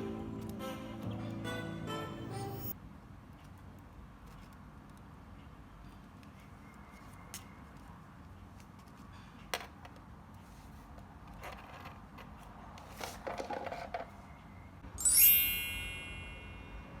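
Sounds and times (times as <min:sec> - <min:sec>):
bright ringing chime: 0:14.9 - 0:17.0.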